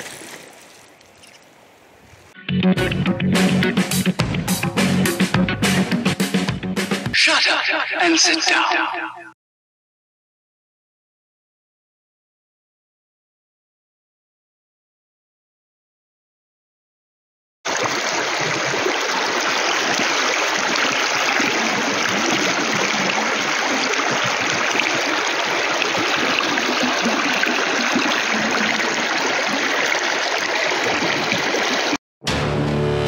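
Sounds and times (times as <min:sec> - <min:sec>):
river water rushing over stones: 0:17.7 - 0:32.0.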